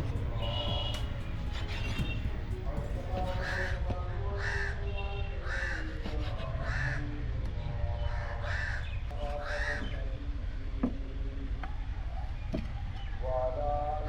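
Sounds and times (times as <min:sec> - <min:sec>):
steady low rumble: 0:00.0 - 0:03.7
crows cawing: 0:00.0 - 0:03.8, 0:04.4 - 0:04.8, 0:05.4 - 0:05.9, 0:06.6 - 0:07.0, 0:08.1 - 0:09.8.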